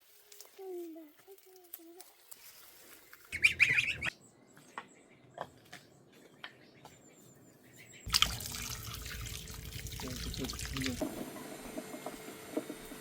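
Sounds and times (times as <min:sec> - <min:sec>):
bird squawking: 0:03.3 - 0:04.1.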